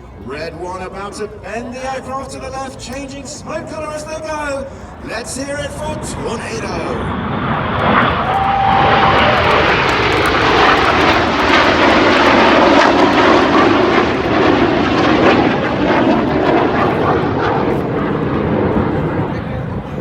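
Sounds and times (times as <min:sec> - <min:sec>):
jets flying past roaring: 0:03.8 - 0:20.0.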